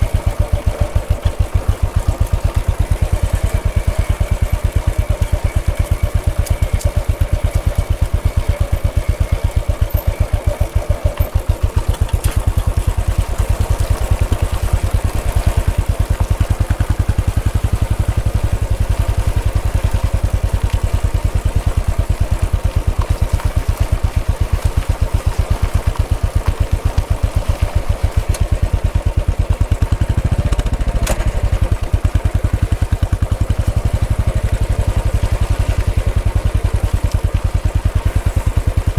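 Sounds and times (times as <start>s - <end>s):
motorcycle engine thumping: 26.4s - 36.3s.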